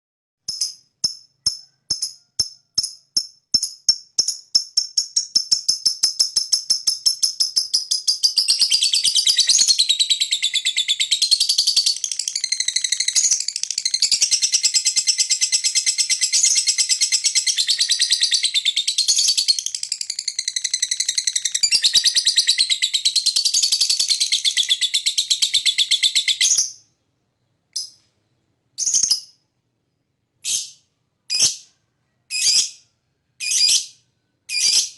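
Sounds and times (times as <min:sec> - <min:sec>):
lovebird chirping chatter: 0:28.8 - 0:29.4, 0:30.4 - 0:31.7, 0:32.3 - 0:34.9.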